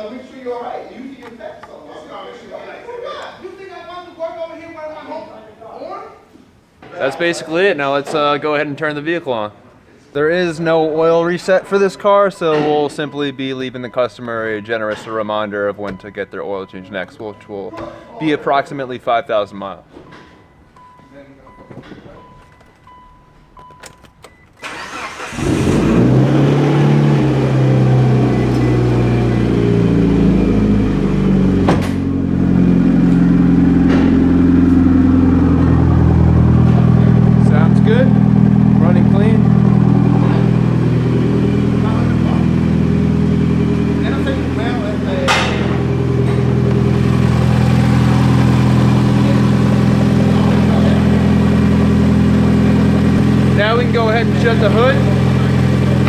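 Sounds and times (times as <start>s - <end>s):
beeps: 20.1s - 24.6s
car engine starting and idling: 23.6s - 56.0s.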